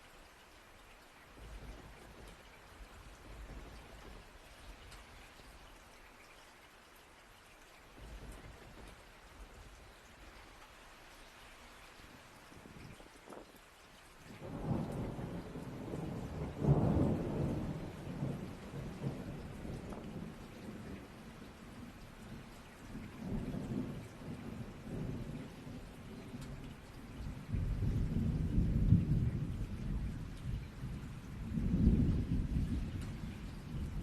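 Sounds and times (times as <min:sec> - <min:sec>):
steady rain: 0:00.0 - 0:34.0
thunder rumbling: 0:01.4 - 0:05.6, 0:08.0 - 0:10.4, 0:14.3 - 0:34.0.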